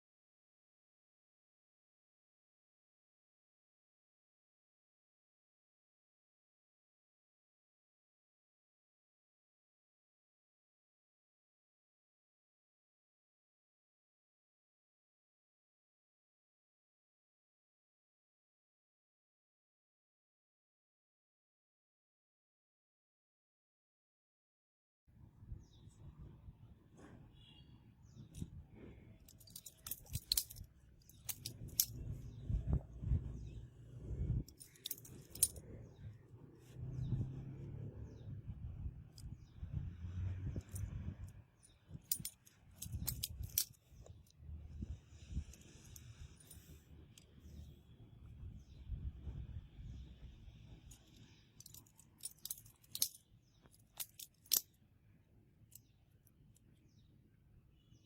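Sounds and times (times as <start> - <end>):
butterfly knife metal clicking: 29.4 - 32.1.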